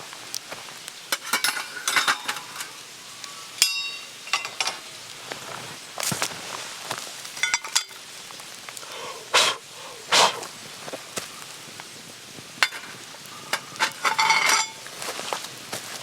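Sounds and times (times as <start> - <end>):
clattering scrape with ringing: 1.1 - 2.8, 3.6 - 4.8, 7.4 - 8.0, 12.6 - 15.3
metal clink: 1.2 - 2.8, 3.6 - 4.8, 7.4 - 8.0, 12.6 - 14.8.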